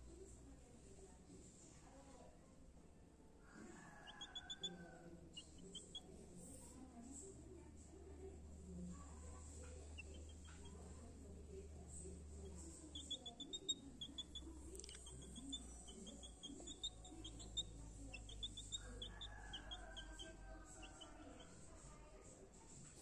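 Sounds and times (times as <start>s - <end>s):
bird chirping: 12.4s - 20.3s.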